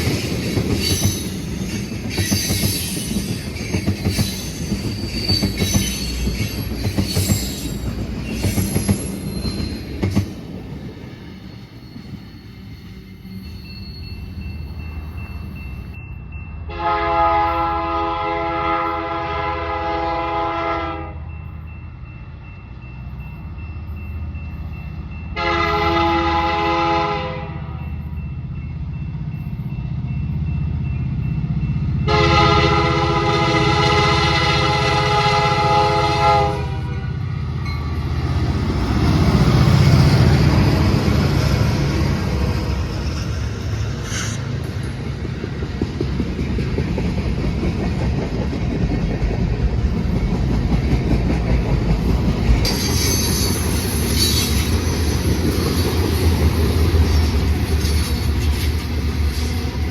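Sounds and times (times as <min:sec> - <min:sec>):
diesel locomotive rumble: 0:00.0 - 0:59.9
train passing rush: 0:00.0 - 0:59.9
train air horn blasts: 0:16.7 - 0:21.2, 0:25.4 - 0:27.8, 0:32.1 - 0:37.3.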